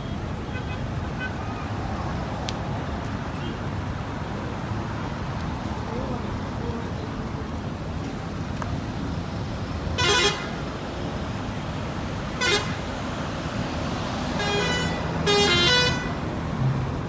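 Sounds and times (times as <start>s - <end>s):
steady traffic noise: 0.0s - 17.0s
car horns honking: 10.0s - 10.7s, 12.3s - 13.1s, 14.2s - 17.0s.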